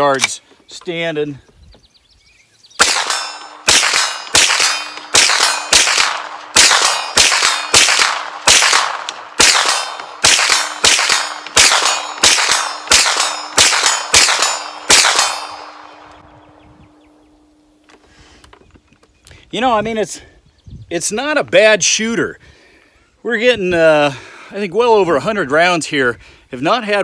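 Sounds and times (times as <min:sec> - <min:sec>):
steel target ringing: 0:02.8 - 0:08.7, 0:09.4 - 0:16.3
gunshots with echo: 0:02.8 - 0:16.3.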